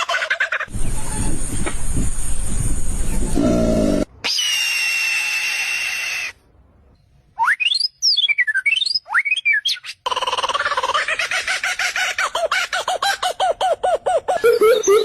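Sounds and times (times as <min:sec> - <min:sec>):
high whistle tone with hiss: 0:00.7 - 0:04.0
whistled chirps sliding in pitch: 0:07.4 - 0:09.8.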